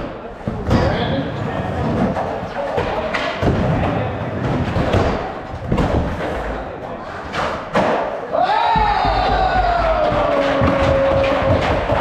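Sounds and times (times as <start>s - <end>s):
crowd chatter: 0.0s - 12.0s
skateboards knocking on ramps: 8.7s - 12.0s.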